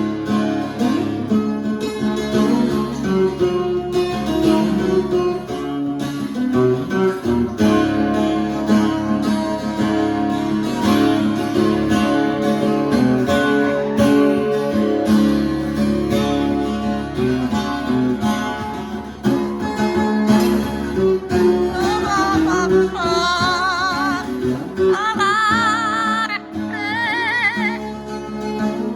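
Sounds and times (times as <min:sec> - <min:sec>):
acoustic guitar strumming: 0:00.0 - 0:28.9
high voice singing with vibrato: 0:21.5 - 0:28.0.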